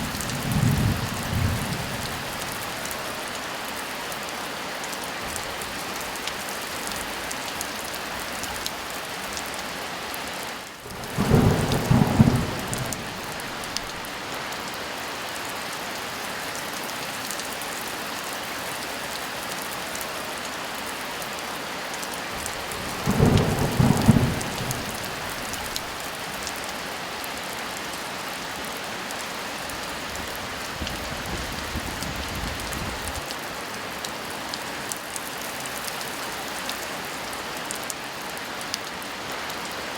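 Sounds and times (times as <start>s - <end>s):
thunder claps rumbling: 0.0s - 2.6s, 10.9s - 14.0s, 22.7s - 26.0s
heavy rain falling: 0.0s - 39.9s.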